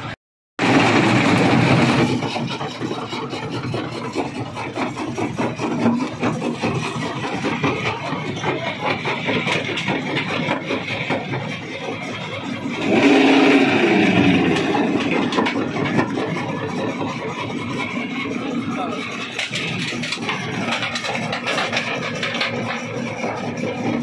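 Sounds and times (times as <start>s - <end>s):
rock crusher grinding stone: 0.6s - 24.0s.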